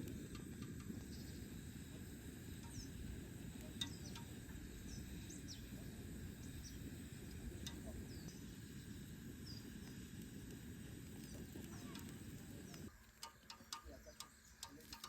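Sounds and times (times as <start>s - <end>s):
faint high chirps: 2.6s - 9.8s.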